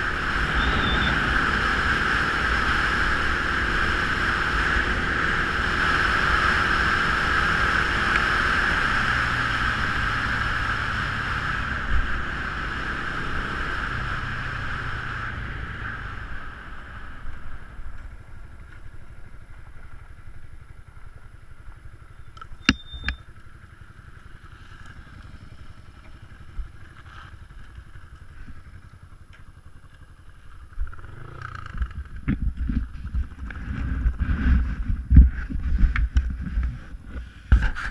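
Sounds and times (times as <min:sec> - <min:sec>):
motorcycle engine running: 0:00.0 - 0:37.9
wind buffeting microphone: 0:31.8 - 0:37.9.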